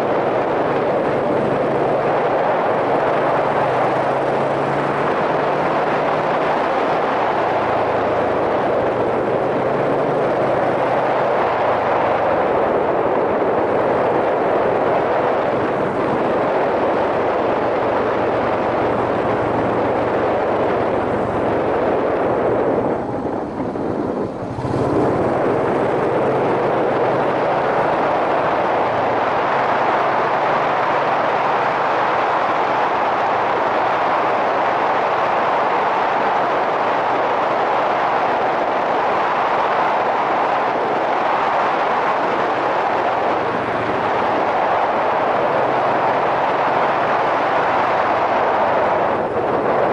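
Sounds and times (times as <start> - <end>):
wind noise on microphone: 0.0 - 49.9
motorcycle engine running: 15.5 - 31.7.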